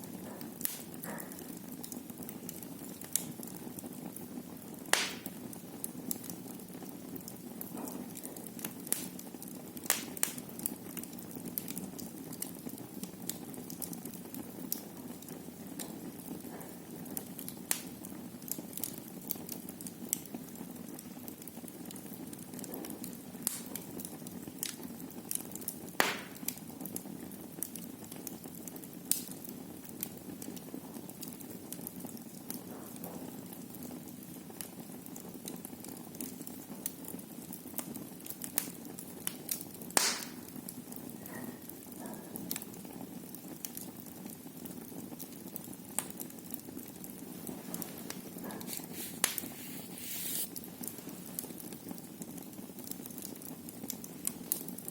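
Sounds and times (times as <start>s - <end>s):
fire crackling in fireplace: 0.0s - 54.9s
sharp fire pops: 0.3s - 3.5s, 4.8s - 6.4s, 7.6s - 11.8s, 17.4s - 18.0s, 22.6s - 27.0s, 29.1s - 29.5s, 38.4s - 42.7s, 47.1s - 51.5s.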